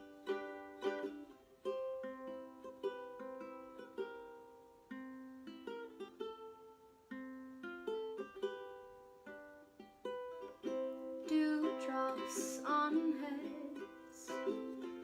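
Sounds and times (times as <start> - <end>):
ukulele picking chords: 0.0 - 15.0
person singing: 10.7 - 15.0.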